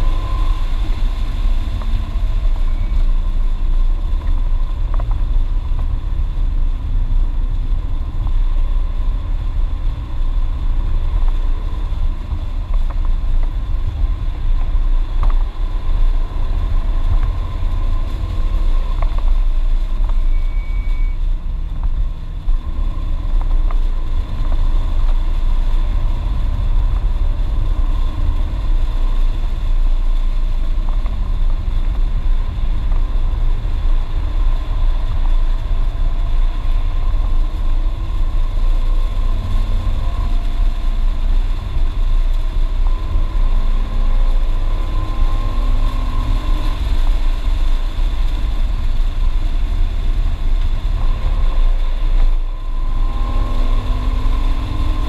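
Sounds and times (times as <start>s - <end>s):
road and wind noise: 0.0s - 55.0s
car engine revving: 52.5s - 55.0s.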